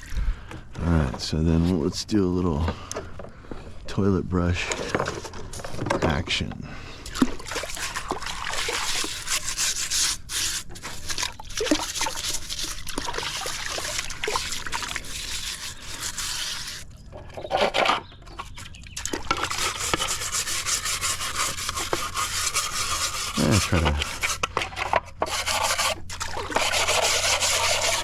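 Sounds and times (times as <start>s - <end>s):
brush bristles scrubbing: 7.4s - 16.9s, 19.1s - 28.0s.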